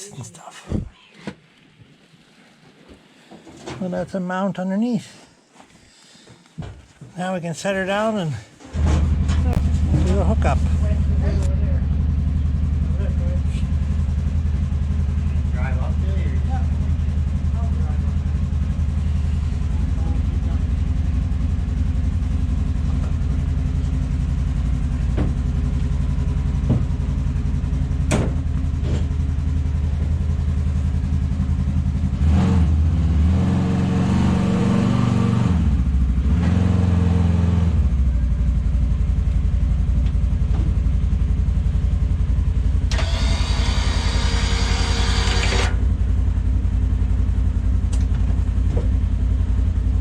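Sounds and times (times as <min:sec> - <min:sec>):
vehicle engine idling: 0:05.0 - 0:33.4, 0:35.6 - 0:36.4, 0:37.7 - 0:50.0
sharp clicks: 0:42.9 - 0:45.8.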